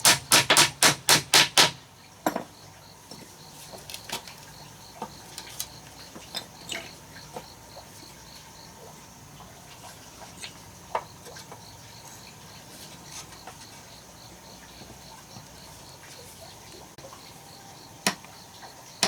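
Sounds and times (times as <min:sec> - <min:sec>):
sharp knocks: 0:00.0 - 0:02.5
cricket chirping: 0:00.1 - 0:19.0.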